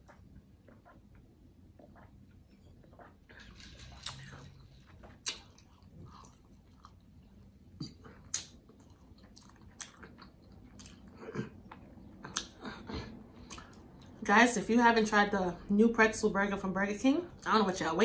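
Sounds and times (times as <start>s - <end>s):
person chewing food: 0.0s - 14.2s.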